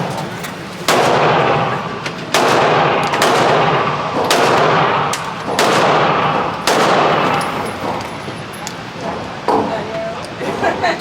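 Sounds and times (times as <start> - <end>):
faint gunshots: 0.9 - 7.6
echoing gunshots: 0.9 - 8.0.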